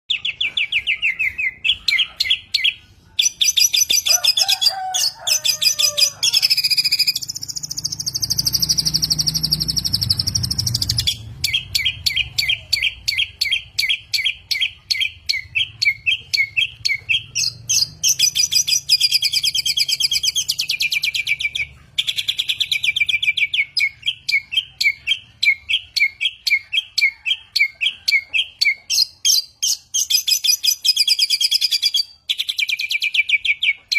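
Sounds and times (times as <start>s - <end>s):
buzzy bird trill: 0.1s - 33.9s
songbird chirping: 0.1s - 33.9s.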